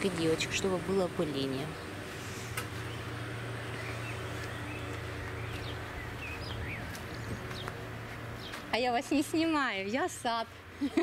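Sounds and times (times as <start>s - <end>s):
bird chirps: 2.8s - 7.8s.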